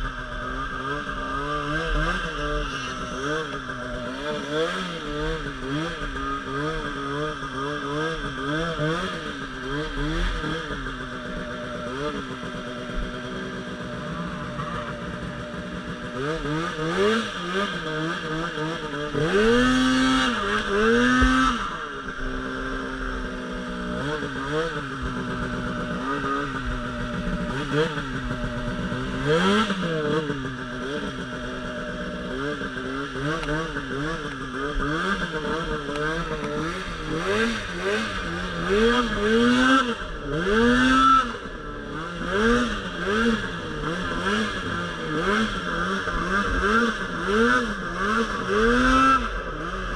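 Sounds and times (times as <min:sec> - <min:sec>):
snowmobile engine revving: 0:00.0 - 0:49.9.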